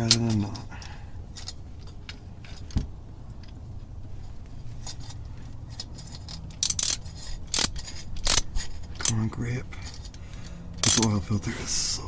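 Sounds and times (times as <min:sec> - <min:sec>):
wrench clicking on oil filter: 0:04.8 - 0:09.2, 0:09.8 - 0:11.2.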